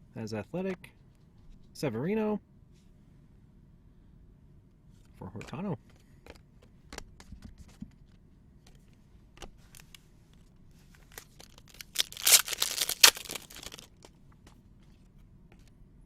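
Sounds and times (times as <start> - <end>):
foil wrapper tearing: 11.0 - 14.1.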